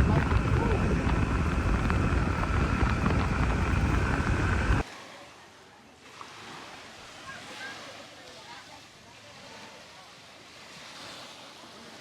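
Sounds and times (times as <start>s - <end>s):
faint steady whine: 0.0s - 4.8s
loud steady rushing noise: 0.0s - 4.8s
outdoor ambience: 0.0s - 4.8s.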